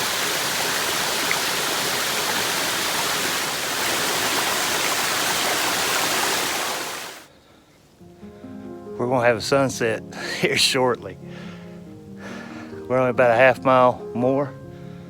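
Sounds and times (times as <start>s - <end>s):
fast-flowing creek water rushing: 0.0s - 7.2s.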